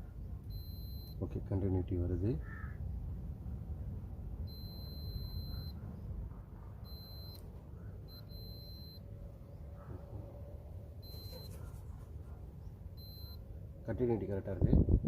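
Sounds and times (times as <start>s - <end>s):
multimeter continuity beeps: 0.4s - 1.3s, 4.4s - 6.1s, 6.8s - 9.2s, 11.0s - 11.6s, 12.9s - 13.5s.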